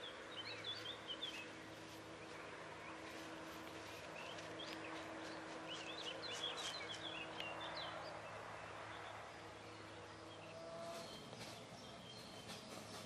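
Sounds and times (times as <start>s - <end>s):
outdoor background hiss: 0.0s - 13.0s
small bird chirping: 4.2s - 8.0s.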